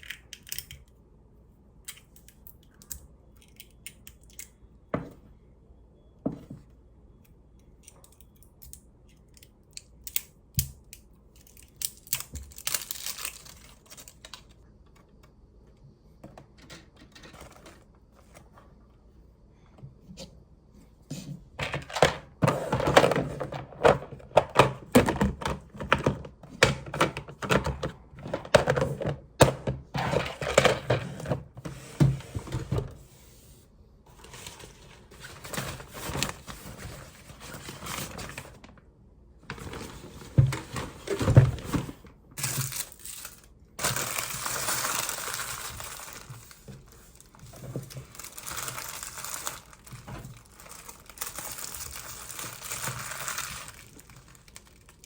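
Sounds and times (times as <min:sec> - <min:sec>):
crinkling: 0:11.4 - 0:15.2, 0:34.1 - 0:55.0.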